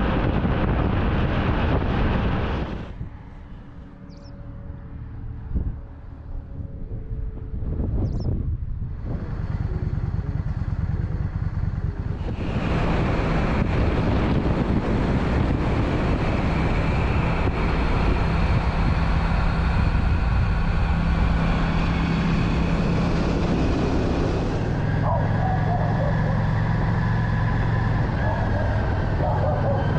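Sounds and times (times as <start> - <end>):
wind and road noise: 0.0 - 29.9
motorcycle engine running: 8.8 - 29.9.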